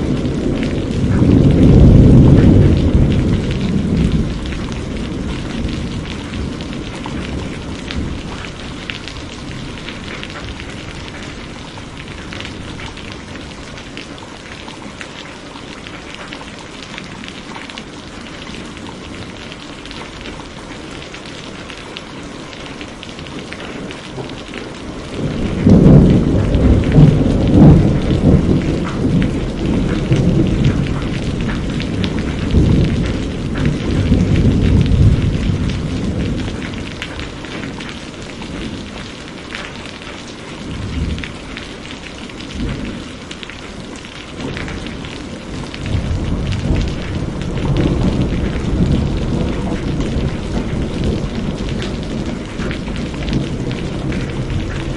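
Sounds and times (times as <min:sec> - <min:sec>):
rolling thunder: 0:00.0 - 0:13.6, 0:23.9 - 0:39.0, 0:40.6 - 0:43.5, 0:44.2 - 0:54.9
steady rain: 0:00.0 - 0:54.9.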